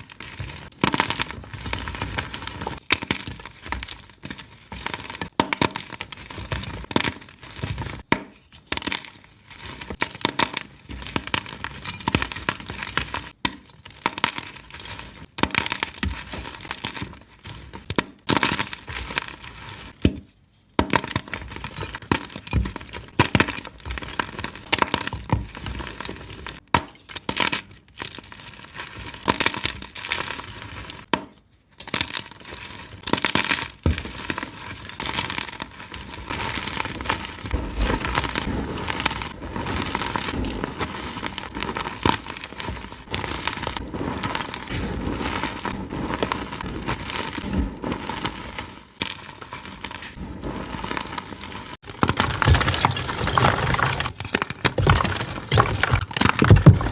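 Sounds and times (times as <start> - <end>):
chalk being crushed: 31.8 - 56.9.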